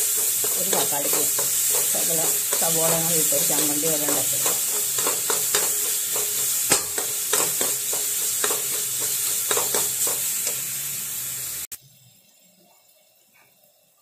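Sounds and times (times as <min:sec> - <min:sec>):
steel spoon scraping a pan: 0:00.0 - 0:10.9
onions and tomato sizzling in pan: 0:00.0 - 0:14.0.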